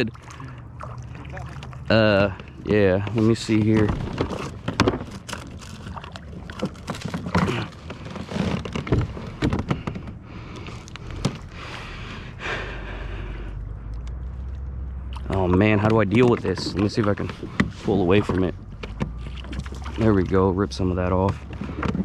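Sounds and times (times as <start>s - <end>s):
gear knocking and rustling: 1.9s - 11.9s, 14.0s - 22.0s
sharp thunks: 3.5s - 5.5s, 6.4s - 10.2s.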